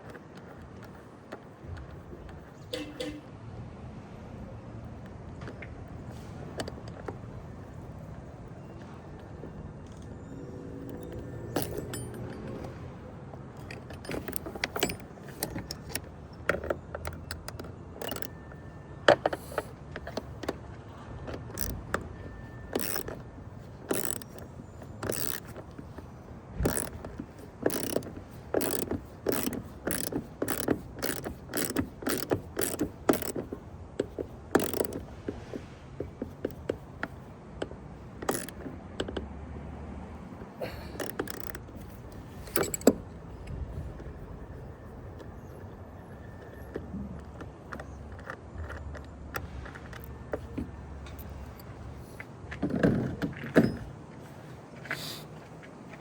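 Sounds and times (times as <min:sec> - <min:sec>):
ratchet wrench clicking: 0:10.9 - 0:12.7, 0:13.6 - 0:18.4, 0:21.5 - 0:26.0, 0:26.6 - 0:35.1, 0:38.2 - 0:39.2, 0:40.6 - 0:43.0.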